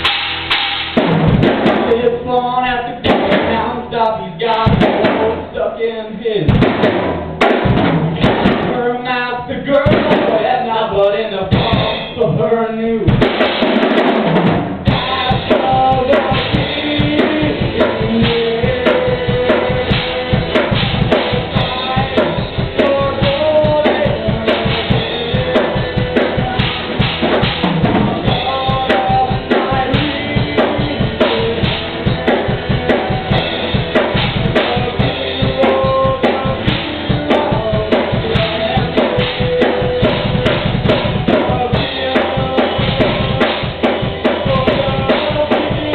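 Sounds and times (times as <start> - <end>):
bass drum and snare hits: 0.0 - 2.1, 3.0 - 3.8, 4.6 - 5.5, 6.5 - 9.0, 9.7 - 10.6, 13.1 - 45.9
band playing live: 0.0 - 45.9.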